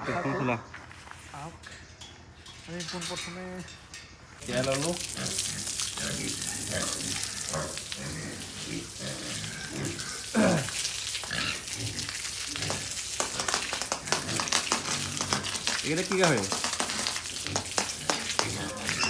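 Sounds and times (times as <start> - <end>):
pigs grunting: 4.4 - 19.0
pig squealing: 5.0 - 15.8, 17.0 - 19.0.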